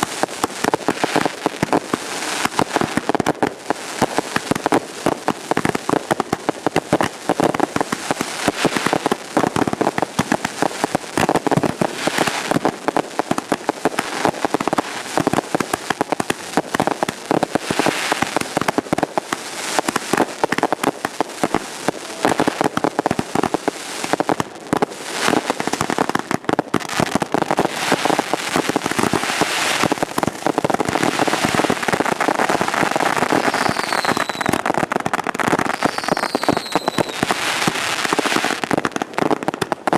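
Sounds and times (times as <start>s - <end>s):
fireworks popping and crackling: 0.0s - 39.9s
falling firework whistle: 33.3s - 34.6s, 35.6s - 38.6s.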